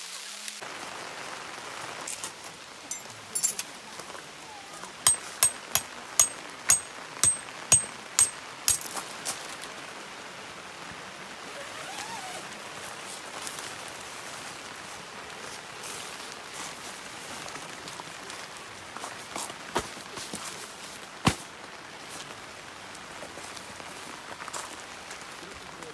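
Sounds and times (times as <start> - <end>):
sharp metallic pings: 2.9 - 3.5, 5.1 - 8.9.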